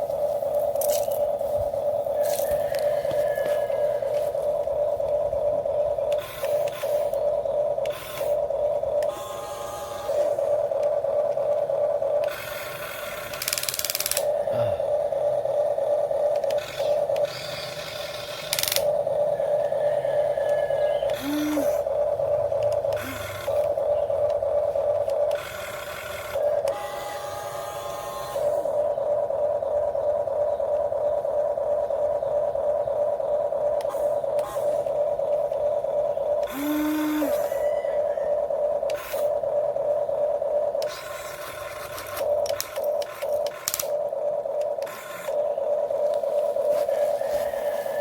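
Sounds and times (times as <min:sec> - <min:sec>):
small electric motors whining: 0:00.0 - 0:48.0
harsh motor bursts: 0:06.1 - 0:07.2, 0:07.8 - 0:08.4, 0:09.0 - 0:10.5.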